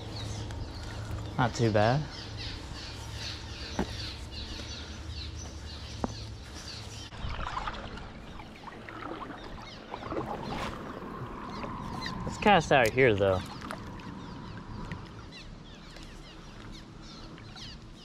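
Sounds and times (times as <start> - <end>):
small birds chirping: 0.0 - 18.0
creek water splashing: 6.7 - 17.6.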